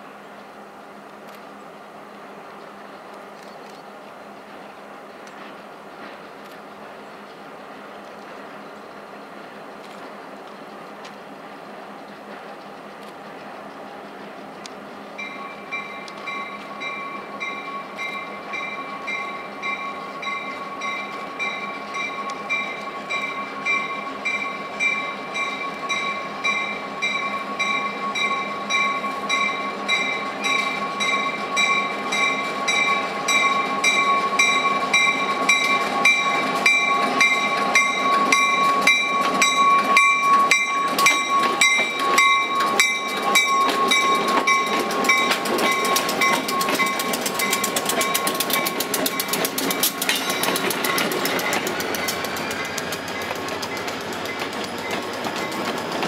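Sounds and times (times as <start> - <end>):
diesel locomotive engine: 0.0 - 56.0
wheels clicking over rail joints: 2.6 - 56.0
locomotive bell ringing: 15.2 - 55.8.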